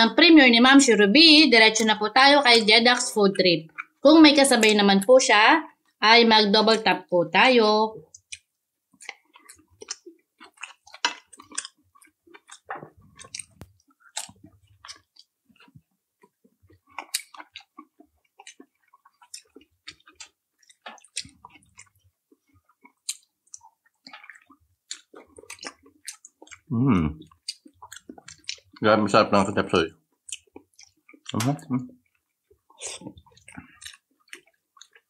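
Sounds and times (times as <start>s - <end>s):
person chewing food: 3.6s - 4.8s, 8.0s - 29.0s, 30.0s - 35.0s
wet mouth smacks and clicks: 3.7s - 4.0s, 8.1s - 22.0s, 22.7s - 28.8s, 30.2s - 35.0s.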